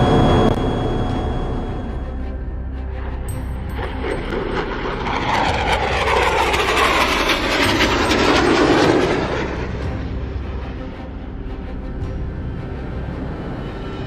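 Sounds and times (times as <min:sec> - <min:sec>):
jet aircraft flying past: 0:02.9 - 0:11.4.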